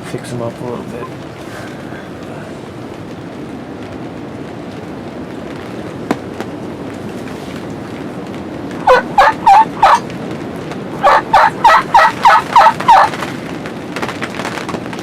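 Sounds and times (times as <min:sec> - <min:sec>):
wild turkey yelping: 0:08.8 - 0:10.0, 0:11.0 - 0:13.2.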